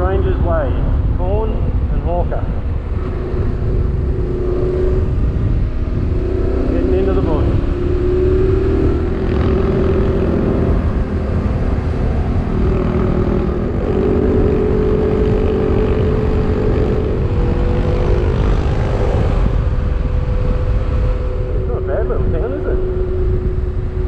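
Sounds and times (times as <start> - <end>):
motorcycle engine cruising: 0.0 - 24.0
wind rumble on microphone: 0.0 - 24.0.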